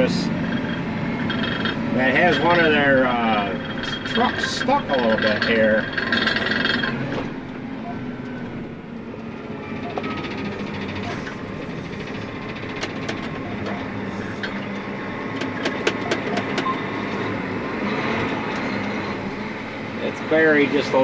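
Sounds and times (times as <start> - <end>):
heavy diesel machinery running: 0.0 - 21.0
sharp clicks or clanks: 9.8 - 14.7, 15.3 - 16.8.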